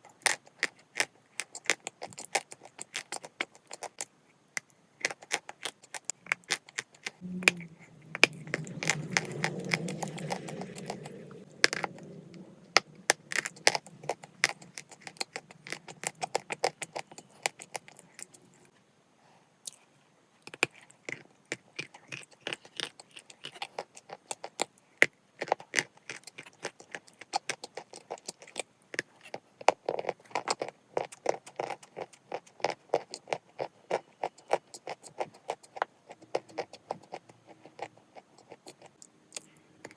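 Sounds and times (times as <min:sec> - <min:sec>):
chalk crunching being chewed: 0:00.0 - 0:18.7, 0:20.5 - 0:39.9
low hummed voice: 0:07.2 - 0:11.5.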